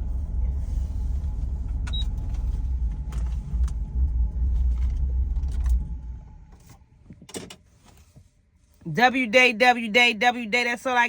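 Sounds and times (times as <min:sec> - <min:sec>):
car interior low drone: 0:00.0 - 0:07.4.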